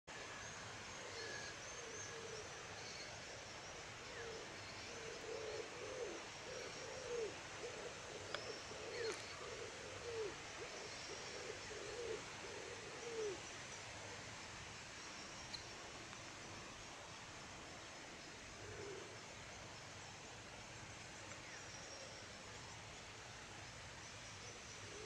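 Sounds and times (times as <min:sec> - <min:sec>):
bird giving low calls: 0:04.2 - 0:13.5.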